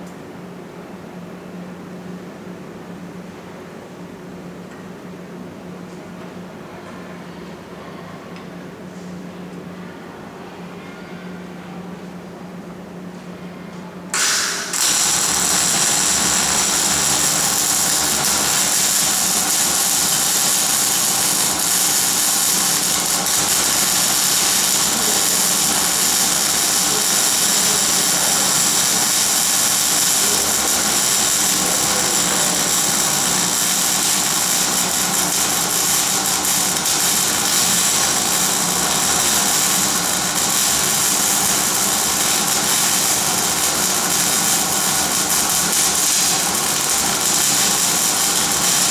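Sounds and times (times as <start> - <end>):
welding arc crackling hiss: 14.2 - 48.9.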